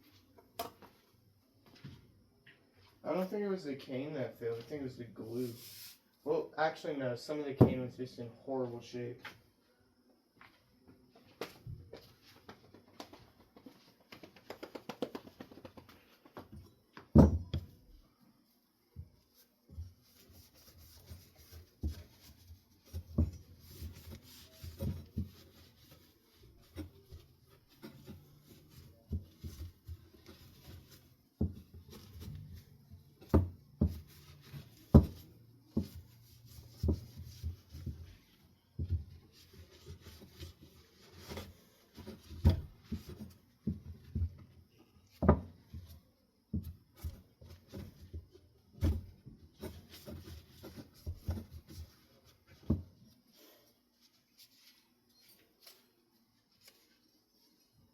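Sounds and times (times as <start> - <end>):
soft rubbing: 4.4 - 6.2, 19.2 - 43.6.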